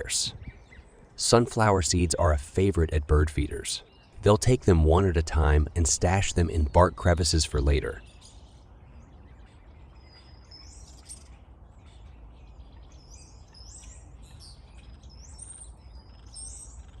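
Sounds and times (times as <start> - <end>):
small bird chirping: 8.0 - 17.0.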